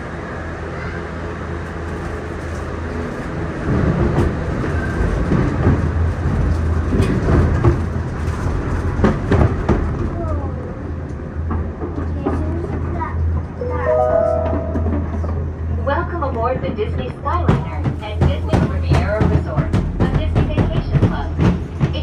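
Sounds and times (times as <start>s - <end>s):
gondola cabin rumbling: 0.0s - 22.0s.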